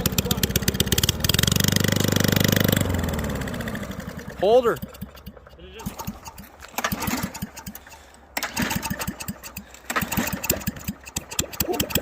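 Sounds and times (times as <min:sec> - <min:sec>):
lawn mower engine sputtering: 0:00.0 - 0:12.0.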